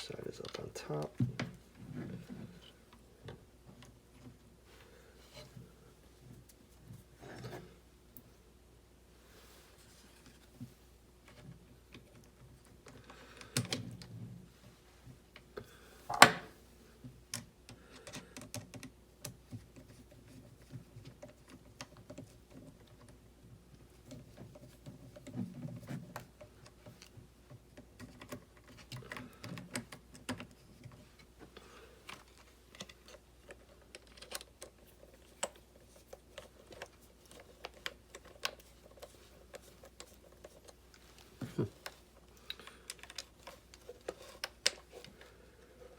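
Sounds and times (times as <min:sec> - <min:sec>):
small parts clicking and rattling: 0:32.0 - 0:45.3.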